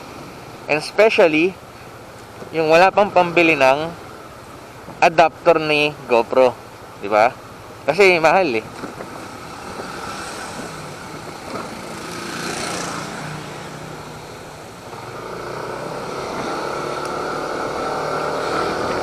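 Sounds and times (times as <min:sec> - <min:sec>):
wind noise on microphone: 0:08.6 - 0:13.0
scooter engine running: 0:08.8 - 0:19.0.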